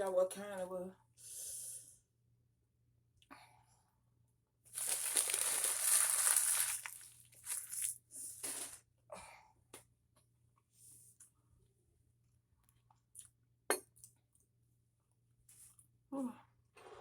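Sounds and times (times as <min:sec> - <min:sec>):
food packaging crinkling: 0:04.7 - 0:08.8.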